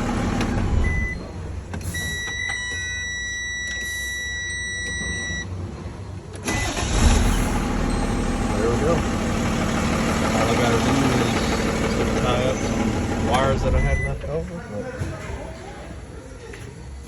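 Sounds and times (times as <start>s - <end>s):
diesel engine running: 0.0s - 2.0s, 5.4s - 14.8s.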